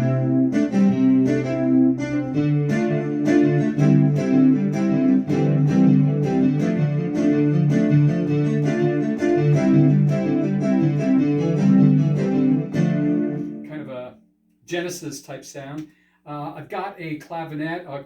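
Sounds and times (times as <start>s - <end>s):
electric piano chords: 0.0s - 13.7s
synthesizer bass line: 0.0s - 13.7s.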